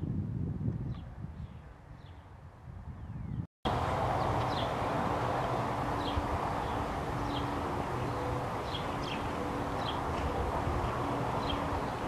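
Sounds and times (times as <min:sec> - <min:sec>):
outdoor rushing noise: 0:03.7 - 0:12.0
bird chirping: 0:04.1 - 0:12.0.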